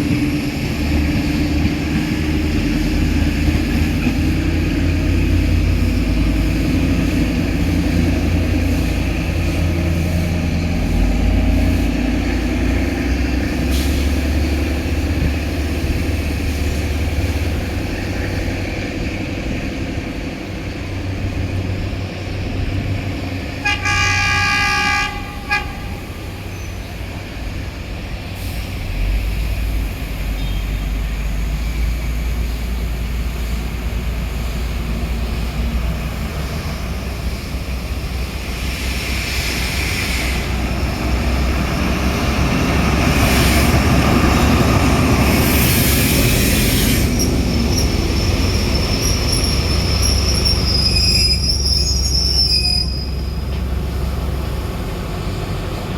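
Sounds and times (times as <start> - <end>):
low train rumble: 0.0 - 55.9
train horn blast: 23.6 - 26.5.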